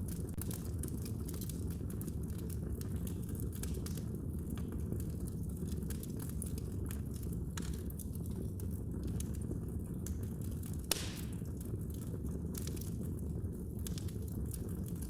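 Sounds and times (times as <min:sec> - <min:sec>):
wood fire popping: 0:00.0 - 0:15.0
wood fire rumbling: 0:00.0 - 0:15.0
fire hissing: 0:10.9 - 0:11.4.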